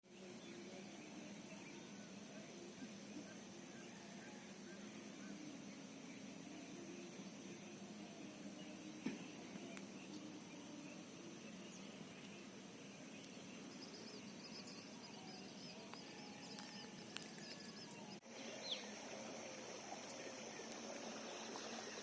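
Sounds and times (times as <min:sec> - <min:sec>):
steady high-pitched hiss: 0:00.1 - 0:22.0
small birds calling: 0:07.5 - 0:22.0.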